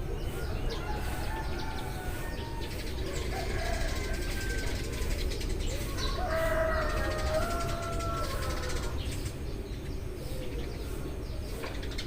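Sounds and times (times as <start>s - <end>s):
sparrows chirping: 0.0s - 12.0s
rooster crowing: 0.4s - 5.2s, 5.8s - 9.1s.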